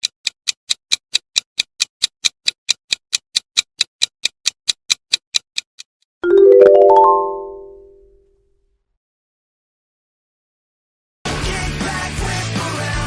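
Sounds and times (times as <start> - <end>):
clock ticking: 0.0 - 5.9.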